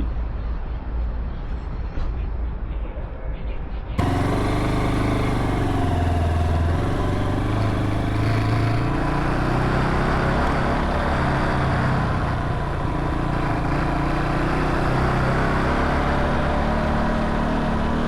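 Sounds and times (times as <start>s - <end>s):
motorcycle engine running: 4.0s - 18.0s.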